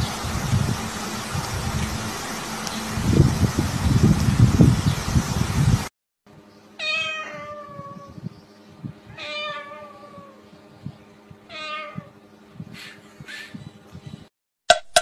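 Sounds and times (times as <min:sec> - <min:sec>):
cat meowing: 0:06.8 - 0:08.2, 0:09.1 - 0:10.4, 0:11.5 - 0:12.1.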